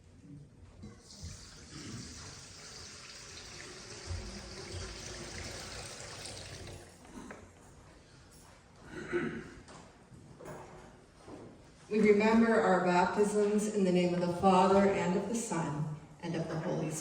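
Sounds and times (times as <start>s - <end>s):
water trickling into a font: 1.0s - 6.9s.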